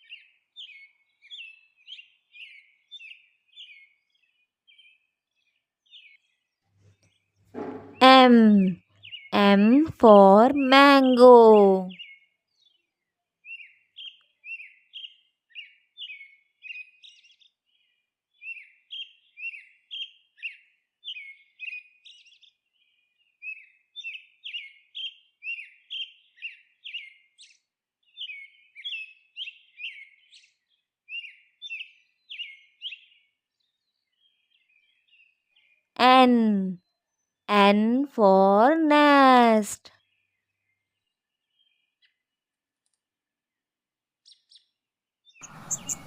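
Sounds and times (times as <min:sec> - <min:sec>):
bird chirping: 0:00.0 - 0:09.7, 0:45.3 - 0:46.0.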